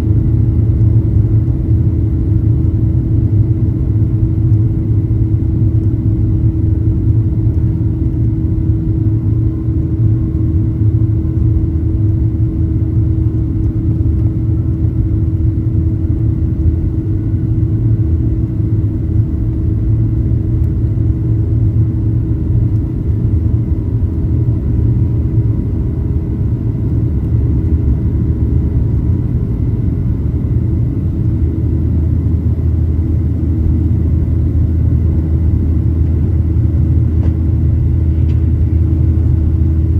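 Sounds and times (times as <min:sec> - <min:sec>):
constant hum: 0:00.0 - 0:39.9
jet engine rumble: 0:00.0 - 0:39.9.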